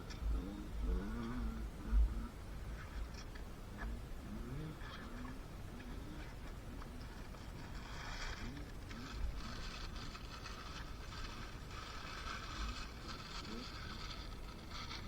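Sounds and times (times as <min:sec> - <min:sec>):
dirt bike engine revving: 0:00.0 - 0:02.3
wind rumble on microphone: 0:00.0 - 0:15.0.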